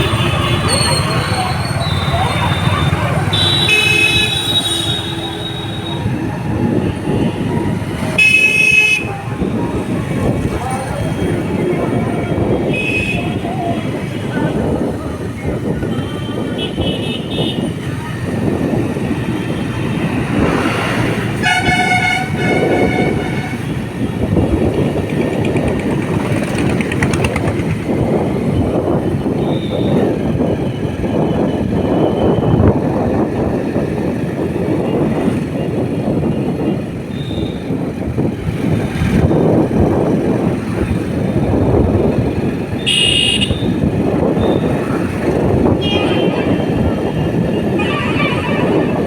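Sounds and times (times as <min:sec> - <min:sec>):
motorbike riding noise: 0:00.0 - 0:49.0
vehicle horn honking: 0:03.3 - 0:06.0, 0:21.4 - 0:23.8, 0:42.8 - 0:43.8, 0:45.8 - 0:49.0
short high-pitched horn toot: 0:47.7 - 0:49.0.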